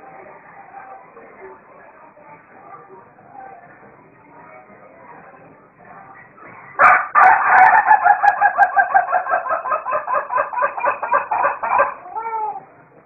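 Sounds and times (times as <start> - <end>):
rooster crowing: 6.8 - 12.6.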